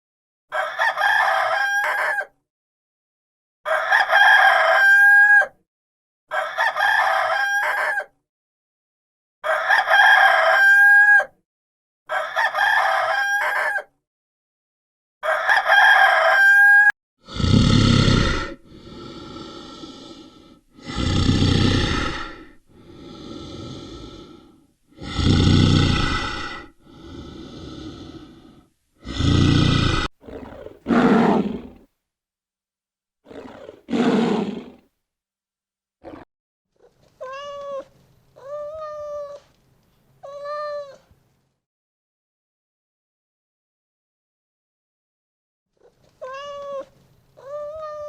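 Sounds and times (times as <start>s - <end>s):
rooster crowing: 0.5s - 2.3s, 3.7s - 5.6s, 6.3s - 8.1s, 9.4s - 11.3s, 12.1s - 13.9s, 15.2s - 16.9s
large animal calling: 29.0s - 31.8s, 33.3s - 34.8s.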